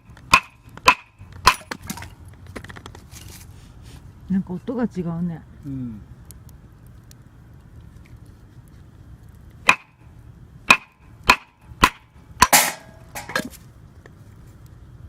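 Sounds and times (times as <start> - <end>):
sharp wooden knocks: 0.0 - 3.0, 9.7 - 9.9, 10.7 - 13.4
wood splintering crackle: 0.0 - 4.8, 5.4 - 10.0.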